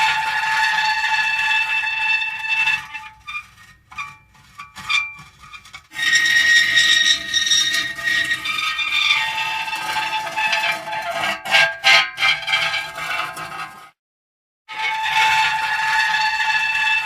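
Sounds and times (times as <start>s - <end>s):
short metal squeaks: 2.6s - 13.7s.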